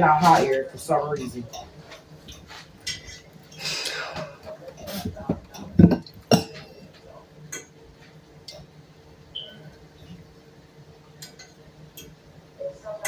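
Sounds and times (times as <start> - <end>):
faint steady hum: 0.0 - 13.0
high chirp: 9.3 - 9.7.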